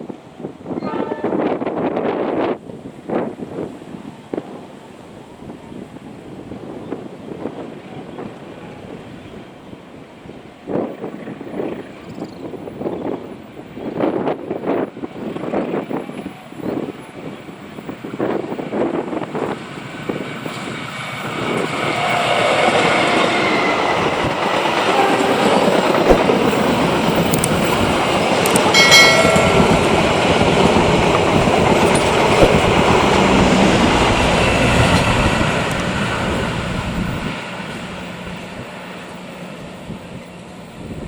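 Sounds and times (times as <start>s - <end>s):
train passing at speed: 0.0s - 41.0s
high-pitched tone: 28.7s - 31.0s.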